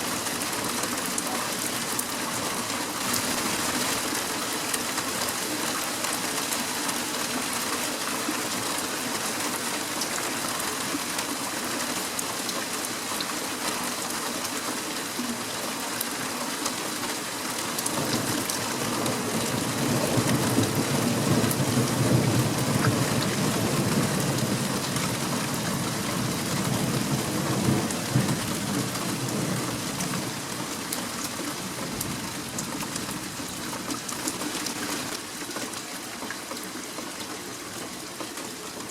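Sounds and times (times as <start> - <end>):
steady rain pattering: 0.0 - 38.9
low rumble of thunder: 18.0 - 30.4.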